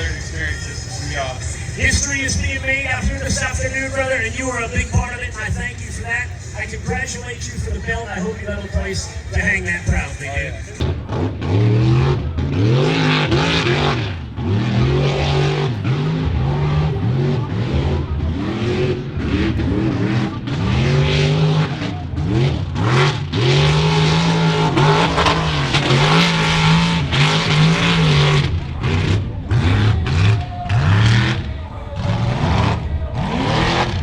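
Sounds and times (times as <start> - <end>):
rushing noise: 0.0 - 10.9
truck engine revving: 0.0 - 34.0.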